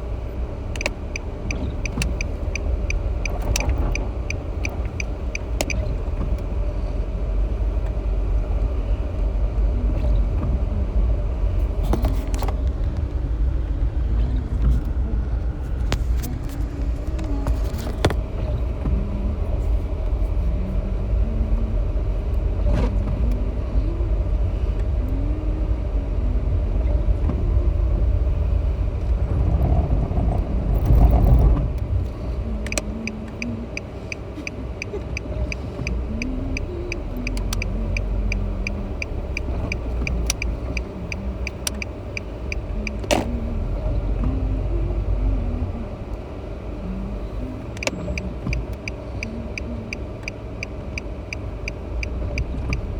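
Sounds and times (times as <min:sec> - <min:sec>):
car road and engine rumble: 0:00.0 - 0:52.9
turn signal clicking: 0:00.5 - 0:06.7, 0:30.8 - 0:44.8, 0:46.9 - 0:52.9.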